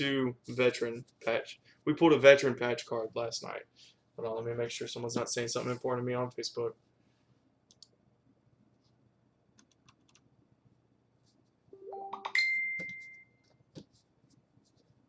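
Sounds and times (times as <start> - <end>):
electronic notification chime: 11.8 - 13.3.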